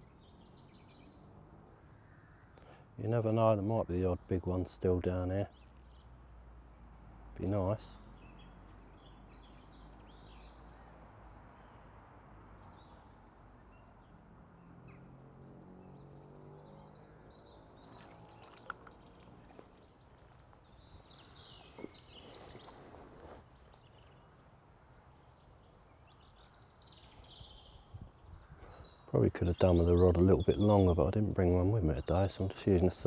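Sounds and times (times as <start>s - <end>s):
small birds chirping: 0.0s - 33.0s
faint clicks: 18.4s - 19.7s.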